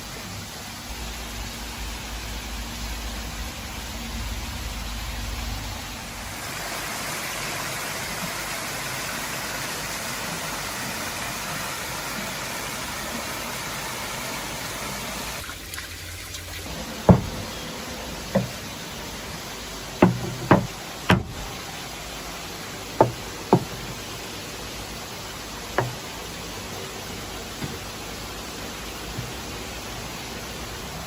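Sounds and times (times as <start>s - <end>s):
sharp knocks: 17.1s - 17.6s, 18.3s - 18.7s, 20.0s - 21.6s, 23.0s - 24.1s, 25.8s - 26.2s.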